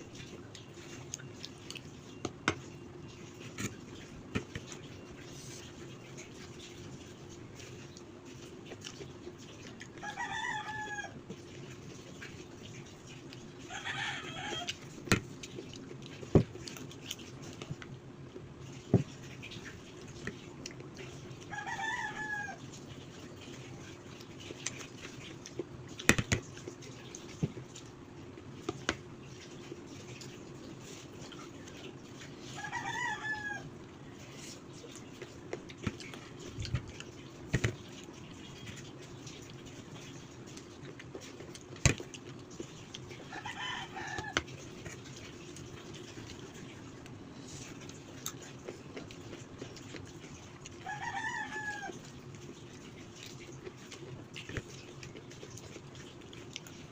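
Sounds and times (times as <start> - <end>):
rooster crowing: 10.0 - 11.2, 13.7 - 14.7, 21.5 - 22.6, 32.6 - 33.7, 43.3 - 44.4, 50.8 - 52.0
chicken calling: 13.7 - 14.8, 32.5 - 33.7.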